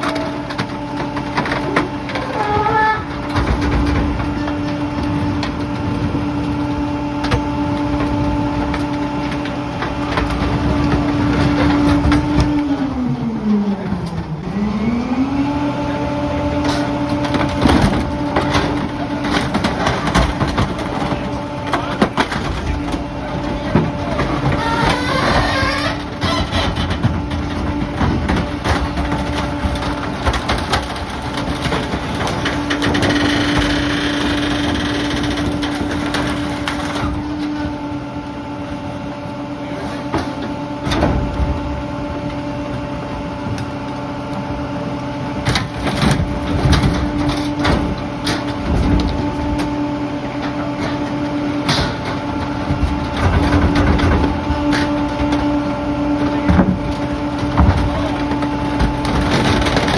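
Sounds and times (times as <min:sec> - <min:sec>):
garbage truck engine humming: 0:00.0 - 0:59.9
debris knocking and clattering: 0:16.7 - 0:37.5, 0:50.4 - 0:59.9.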